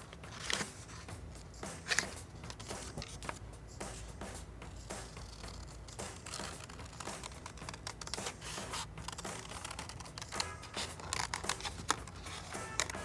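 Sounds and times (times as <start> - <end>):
paper rustling and crinkling: 0.0 - 1.1, 1.8 - 3.4, 6.1 - 13.0
scissors cutting paper plate: 5.2 - 13.0.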